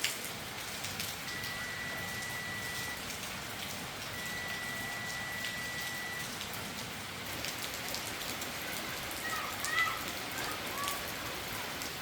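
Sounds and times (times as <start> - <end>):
rain falling: 0.0 - 12.0
thin high tone: 1.3 - 3.0.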